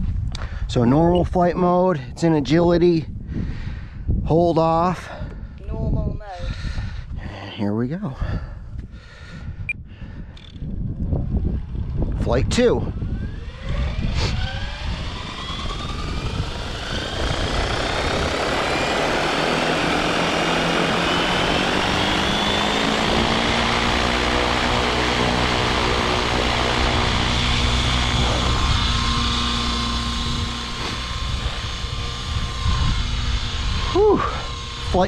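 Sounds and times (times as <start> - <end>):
helicopter rotor blades: 4.5 - 6.9, 10.3 - 35.0
helicopter motor whine: 10.3 - 35.0.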